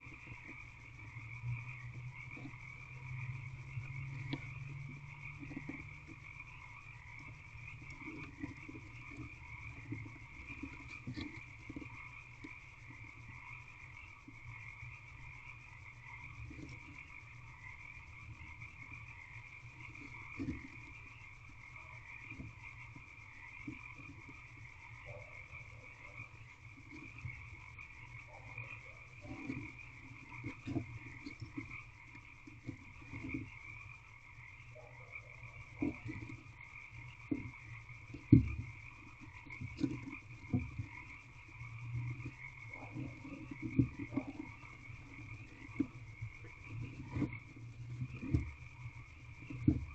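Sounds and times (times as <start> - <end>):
frog chorus calling: 0.0 - 49.9
knocks and scrapes in nest box: 2.2 - 13.6, 19.7 - 33.8, 35.2 - 41.2, 42.1 - 49.9.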